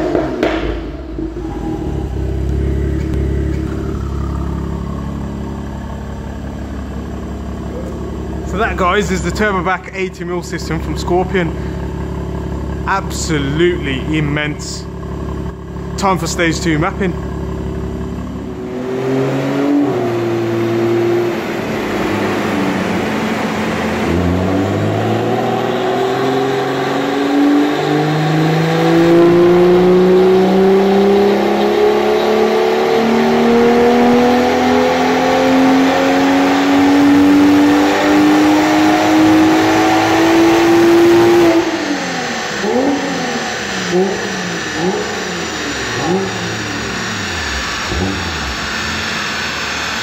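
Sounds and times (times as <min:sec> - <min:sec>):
car engine revving on dyno: 0:00.0 - 0:50.0.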